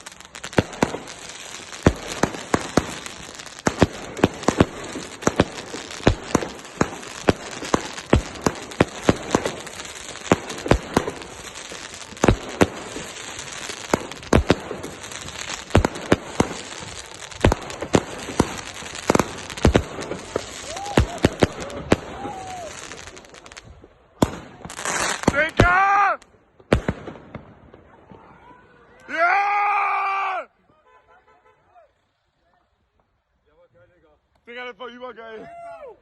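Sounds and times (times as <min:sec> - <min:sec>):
firework bangs: 0:00.0 - 0:28.6
firework crackle: 0:00.0 - 0:29.2.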